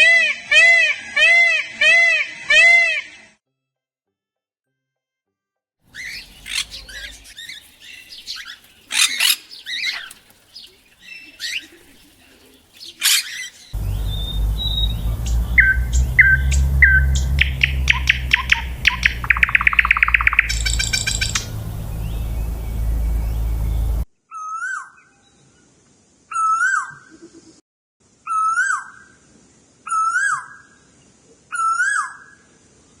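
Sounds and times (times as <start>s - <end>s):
bird rising and falling call: 5.9s - 24.0s
songbird singing with trills: 5.9s - 24.0s
low rumble: 13.8s - 24.0s.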